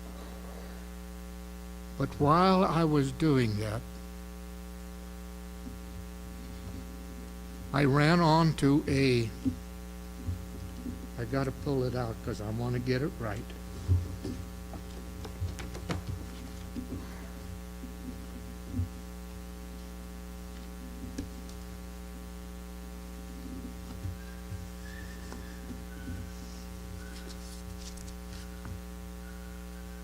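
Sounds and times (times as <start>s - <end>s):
electrical mains hum: 0.0s - 30.0s
soft handling knocks and clicks: 13.7s - 17.2s.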